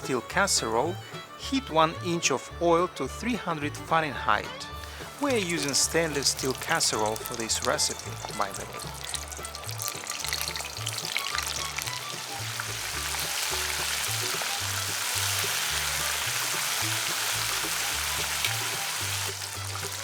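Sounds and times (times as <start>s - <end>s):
background music with bass line: 0.0s - 20.0s
chicken frying in oil: 4.8s - 20.0s.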